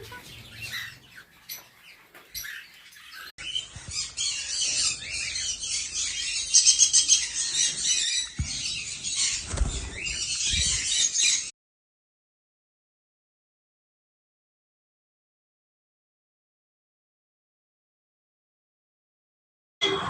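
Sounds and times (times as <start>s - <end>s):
caged birds chattering and squawking: 0.0s - 11.5s.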